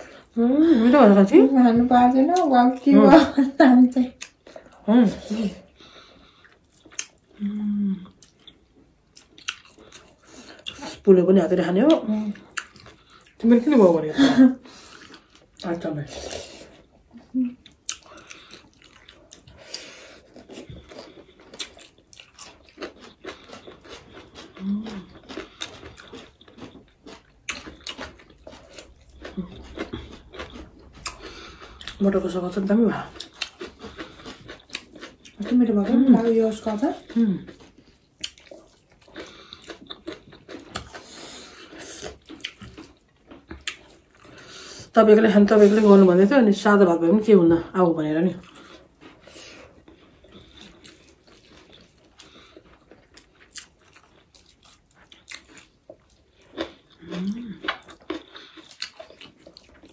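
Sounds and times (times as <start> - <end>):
chewing and lip-smacking: 4.1 - 11.1, 11.9 - 13.7, 14.6 - 45.8, 48.3 - 59.9.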